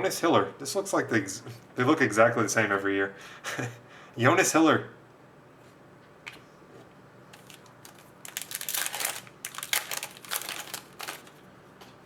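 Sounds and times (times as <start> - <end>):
foil wrapper crinkling: 7.3 - 11.5.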